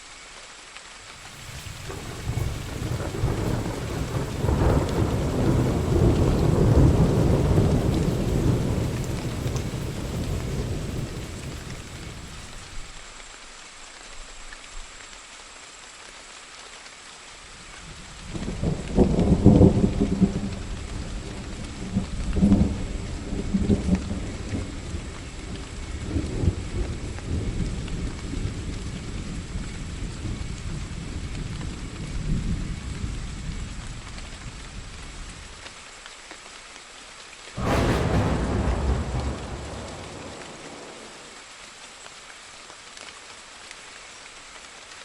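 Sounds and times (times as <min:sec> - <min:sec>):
steady rain: 0:00.0 - 0:45.0
rolling thunder rumble: 0:01.2 - 0:12.9, 0:18.4 - 0:29.6, 0:37.6 - 0:41.4
sharp thunderclap: 0:01.2 - 0:12.9, 0:37.6 - 0:41.4.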